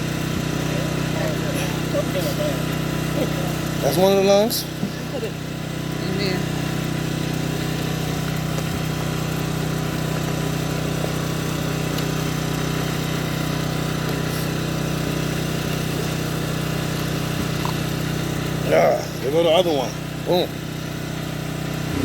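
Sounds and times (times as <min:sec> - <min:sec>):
machine hum: 0:21.7 - 0:22.0.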